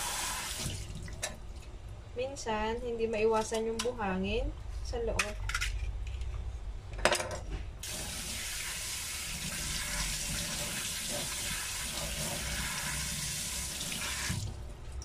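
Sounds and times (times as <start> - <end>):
tap water running into metal sink: 7.8 - 14.6.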